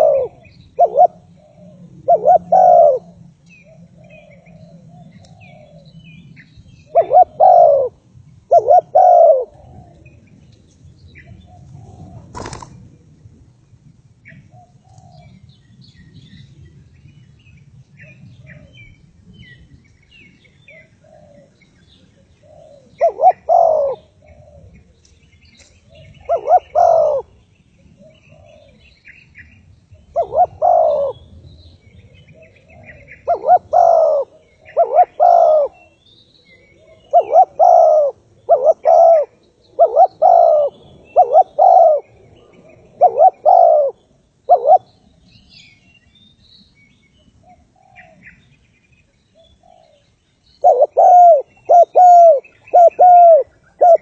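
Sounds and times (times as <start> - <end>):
dove cooing: 0.0 - 6.1, 6.9 - 10.2, 11.2 - 13.0, 14.2 - 15.4, 20.7 - 24.9, 25.9 - 31.4, 32.1 - 45.1, 50.6 - 54.0
small birds chirping: 14.3 - 54.0.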